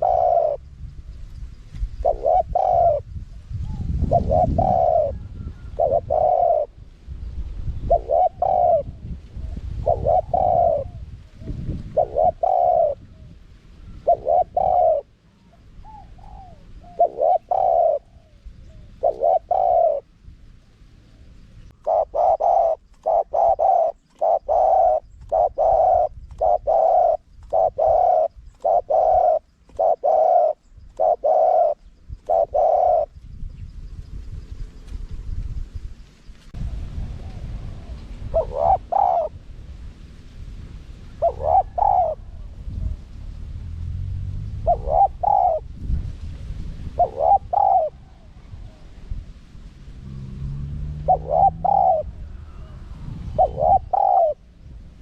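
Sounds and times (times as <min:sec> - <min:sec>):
dove cooing: 0:00.0 - 0:00.7, 0:01.9 - 0:06.8, 0:07.7 - 0:20.1, 0:21.1 - 0:33.2, 0:36.6 - 0:39.4, 0:41.1 - 0:43.1, 0:44.5 - 0:46.0, 0:46.9 - 0:49.2, 0:50.4 - 0:55.0
low rumble: 0:33.3 - 0:38.5, 0:42.2 - 0:47.0, 0:48.0 - 0:55.0.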